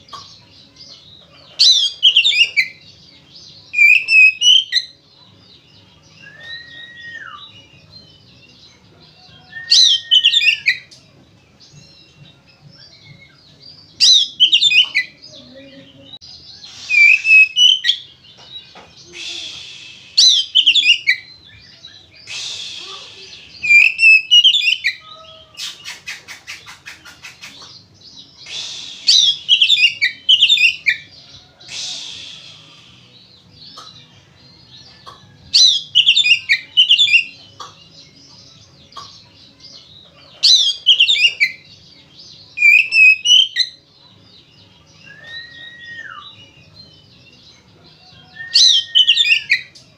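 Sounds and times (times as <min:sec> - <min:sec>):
bird singing whistled notes: 0:01.6 - 0:05.0, 0:06.0 - 0:11.0, 0:11.9 - 0:15.3, 0:16.3 - 0:33.9, 0:35.4 - 0:38.6, 0:40.4 - 0:43.8, 0:44.9 - 0:47.0, 0:47.9 - 0:49.9
bird harsh rasps: 0:16.6 - 0:18.1, 0:19.0 - 0:21.4, 0:22.2 - 0:33.1.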